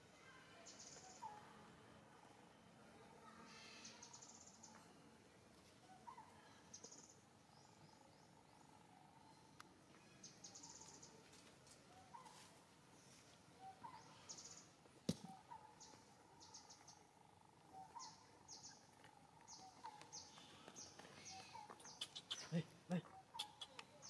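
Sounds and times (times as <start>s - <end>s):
bird chirping: 5.9s - 24.0s.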